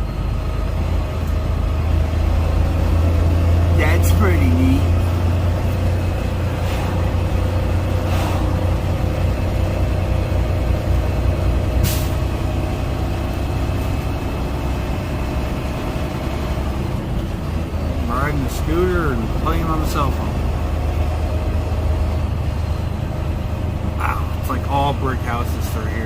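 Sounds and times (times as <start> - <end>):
truck engine humming: 0.0 - 26.0.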